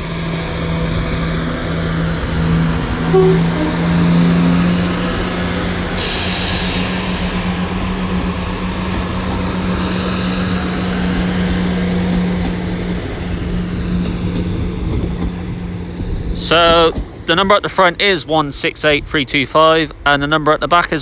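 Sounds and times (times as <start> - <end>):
train diesel engines humming: 0.0 - 21.0
hiss: 5.9 - 14.9.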